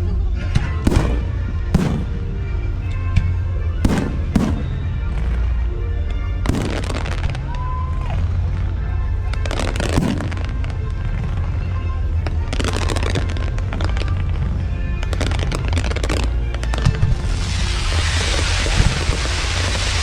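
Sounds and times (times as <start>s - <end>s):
music: 0.0s - 20.0s
fireworks bangs: 0.8s - 3.0s, 3.8s - 5.5s, 6.5s - 7.5s, 9.5s - 10.8s
fireworks crackling: 0.8s - 3.0s, 3.8s - 5.6s, 6.5s - 7.5s, 9.4s - 11.4s, 15.0s - 16.4s, 17.2s - 20.0s.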